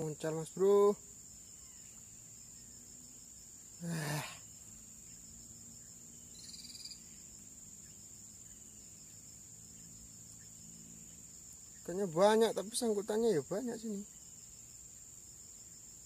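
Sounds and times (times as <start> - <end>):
insect drone: 0.0 - 16.0
faint high chirp: 5.8 - 11.9.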